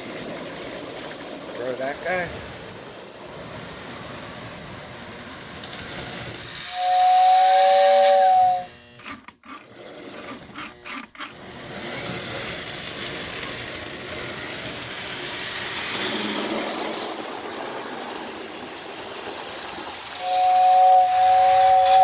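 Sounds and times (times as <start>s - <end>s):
toy train running on track: 0.0s - 22.0s
toy train whistle: 6.6s - 9.1s, 20.2s - 22.0s.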